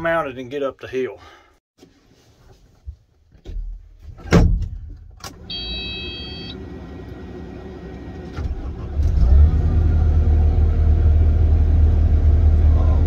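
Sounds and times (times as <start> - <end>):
diesel engine starting and running: 5.2 - 13.0
electronic warning beep: 5.5 - 6.6.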